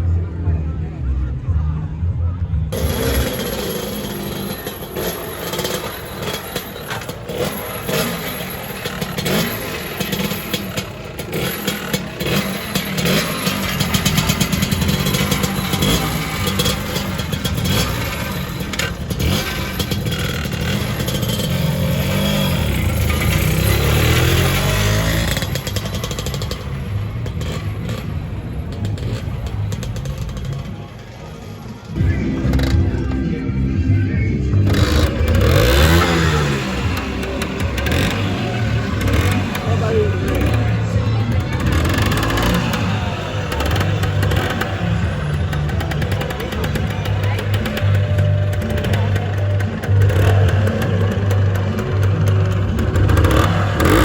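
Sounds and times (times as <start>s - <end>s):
scooter engines passing by: 0.0s - 54.0s.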